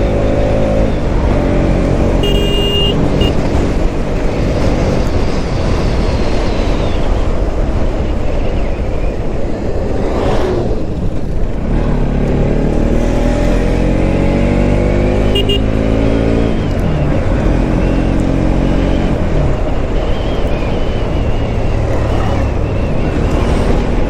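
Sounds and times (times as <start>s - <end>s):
motorcycle engine running: 0.0s - 5.4s, 9.9s - 24.0s
wind noise: 0.0s - 24.0s.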